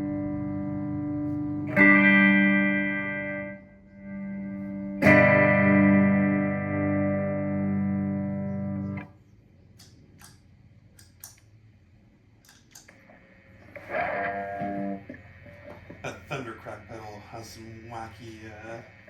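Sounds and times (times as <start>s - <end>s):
distorted electric guitar chord: 0.0s - 9.1s, 13.7s - 15.2s
faint clicks: 9.7s - 11.6s, 12.4s - 13.1s.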